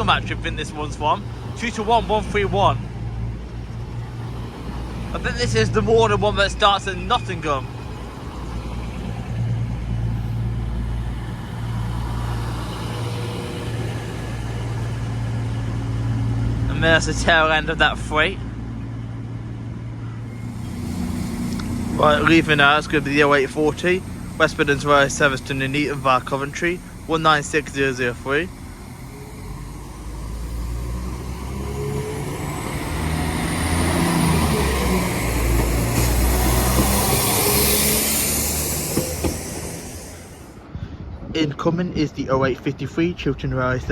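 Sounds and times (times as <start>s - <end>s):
diesel locomotive drone: 0.0s - 43.9s
rumble of rolling wagons: 0.0s - 43.9s
faint high whine: 19.8s - 40.6s.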